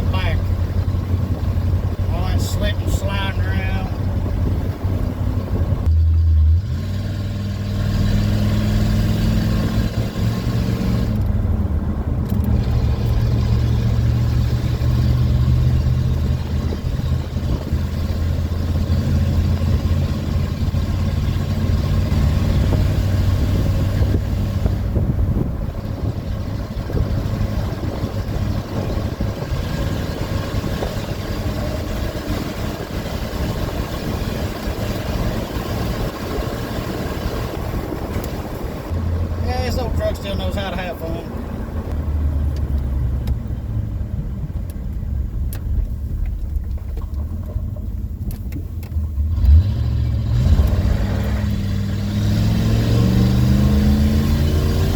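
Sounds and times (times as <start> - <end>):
pickup truck engine under throttle: 0.0 - 54.9.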